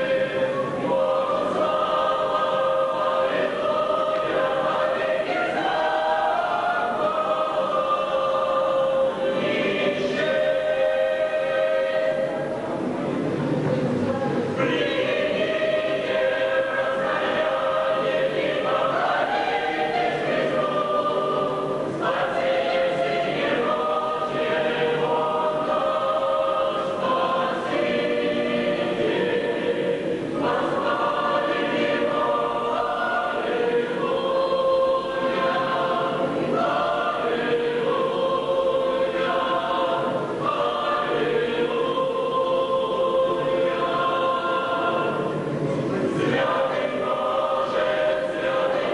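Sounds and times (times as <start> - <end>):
choir singing a hymn: 0.0 - 13.6, 14.4 - 48.9.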